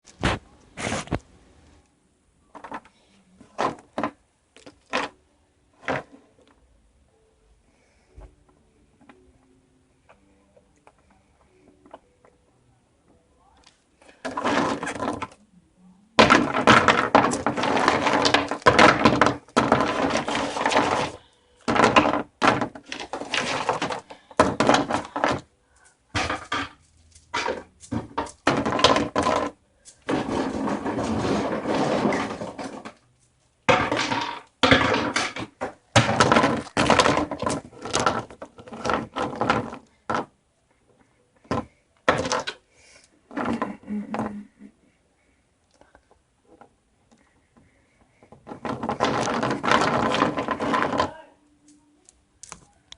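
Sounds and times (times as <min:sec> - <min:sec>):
small hard objects clattering: 0:14.0 - 0:15.4, 0:16.2 - 0:40.3, 0:41.5 - 0:42.6, 0:48.2 - 0:51.8.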